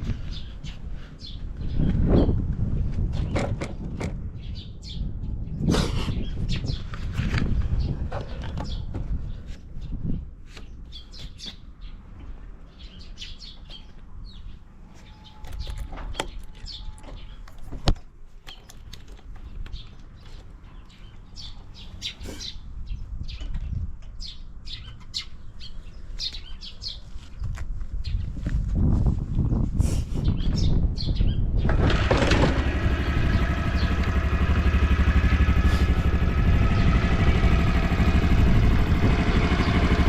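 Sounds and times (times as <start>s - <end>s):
small birds chirping: 0.0s - 3.6s, 4.3s - 28.4s, 30.2s - 31.8s, 32.7s - 40.0s
low steady rumble: 31.7s - 40.0s.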